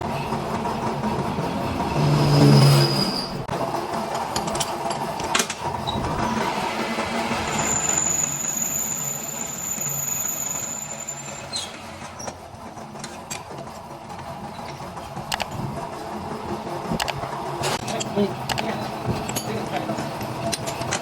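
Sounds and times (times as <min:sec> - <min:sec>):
machinery running: 0:00.0 - 0:21.0
scattered clicks: 0:15.3 - 0:15.6, 0:17.0 - 0:19.5.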